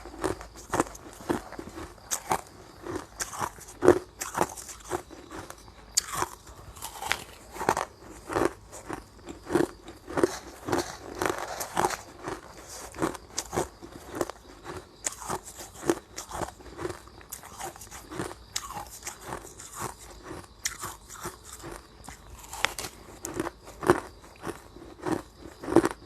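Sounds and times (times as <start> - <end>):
ice being chewed: 0.0 - 26.0.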